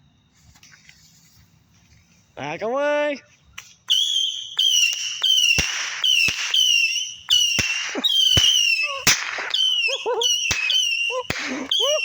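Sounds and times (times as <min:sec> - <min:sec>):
firework whistles: 0:03.6 - 0:12.0
firework bangs: 0:03.9 - 0:12.0.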